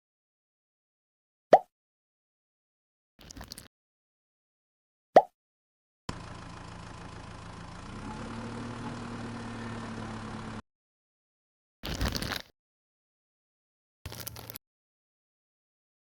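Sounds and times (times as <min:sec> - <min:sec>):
small motor humming: 0:06.1 - 0:10.6.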